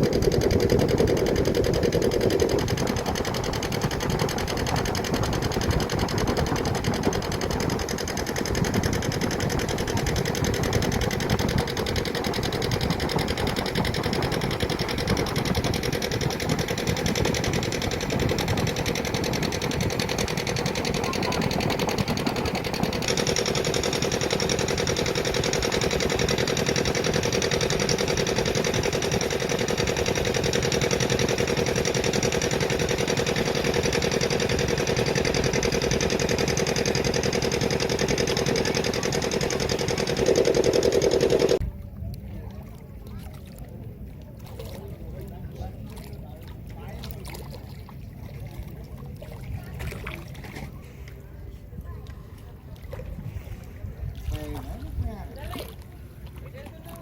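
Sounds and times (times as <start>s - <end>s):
small motor clattering: 0.0s - 41.6s.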